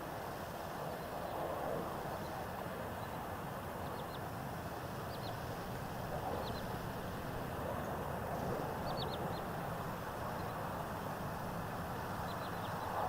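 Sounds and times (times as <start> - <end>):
steady outdoor rush of noise: 0.0 - 13.0
small bird chirping: 6.3 - 6.8, 8.8 - 9.5, 12.2 - 13.0.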